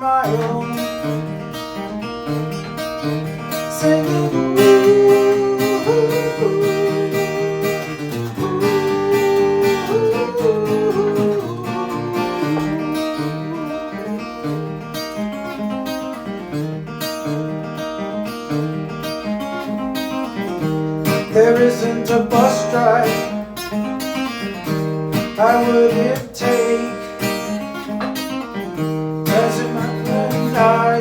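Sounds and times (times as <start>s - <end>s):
acoustic guitar picking and strumming: 0.0s - 31.0s
sustained melody line: 3.8s - 14.4s.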